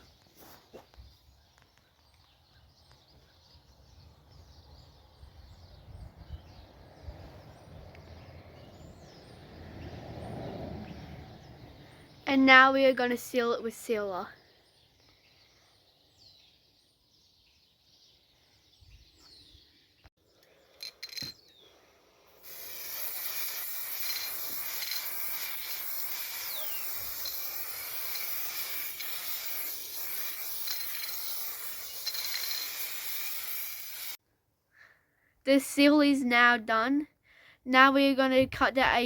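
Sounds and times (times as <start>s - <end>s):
spray sealer hissing: 22.3s - 34.2s.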